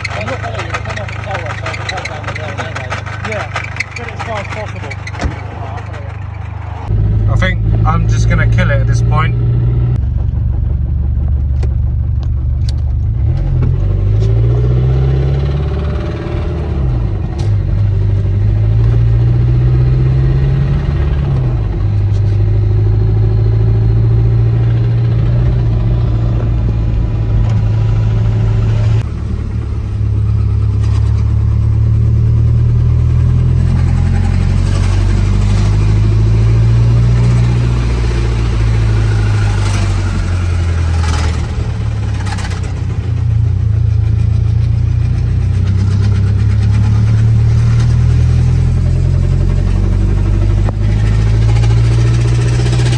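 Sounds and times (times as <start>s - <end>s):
engine knocking: 0.0s - 6.9s, 38.3s - 52.9s
car engine revving under load: 0.0s - 52.9s.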